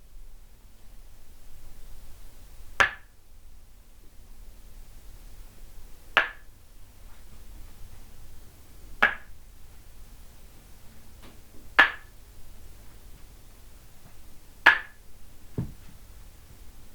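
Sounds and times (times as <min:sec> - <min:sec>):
wooden mallet knocking on wood: 0:15.6 - 0:15.8.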